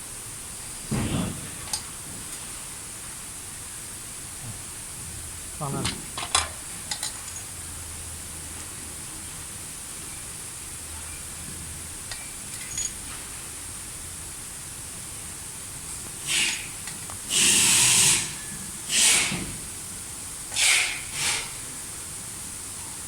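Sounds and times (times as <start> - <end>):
loud rasping noise bursts: 17.3 - 19.4, 20.6 - 21.5.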